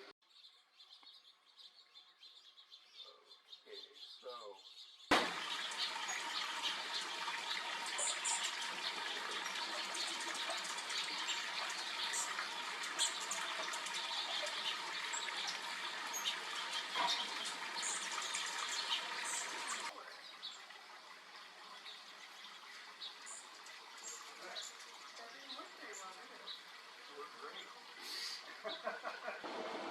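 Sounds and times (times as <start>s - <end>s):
stream water rushing and splashing: 5.1s - 20.0s.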